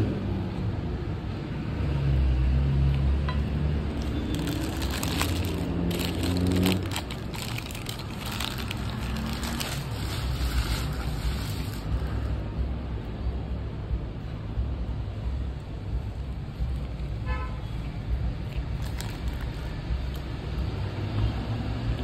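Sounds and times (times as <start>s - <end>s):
crispy chicken being chewed: 3.9s - 12.1s, 17.8s - 20.4s.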